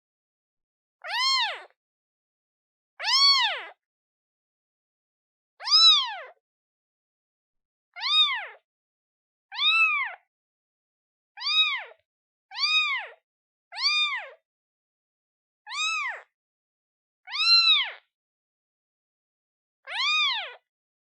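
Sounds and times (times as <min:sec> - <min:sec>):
kitten meowing: 0:01.0 - 0:01.8, 0:03.0 - 0:03.8, 0:05.6 - 0:06.4, 0:08.0 - 0:08.6, 0:09.5 - 0:10.2, 0:11.4 - 0:13.2, 0:13.8 - 0:14.4, 0:15.7 - 0:16.3, 0:17.3 - 0:18.0, 0:19.9 - 0:20.6.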